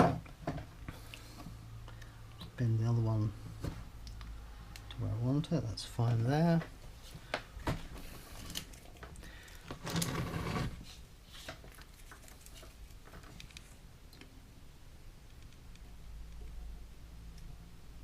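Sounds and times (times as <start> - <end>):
scraping rustle: 9.8 - 12.8.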